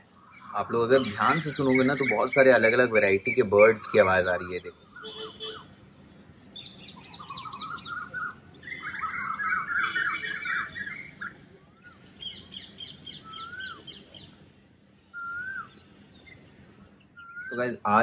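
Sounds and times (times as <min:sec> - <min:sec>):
birds chattering: 0:00.0 - 0:18.0
birds chirping: 0:00.0 - 0:18.0
rising and falling bird whistle: 0:06.6 - 0:14.3, 0:15.1 - 0:17.6.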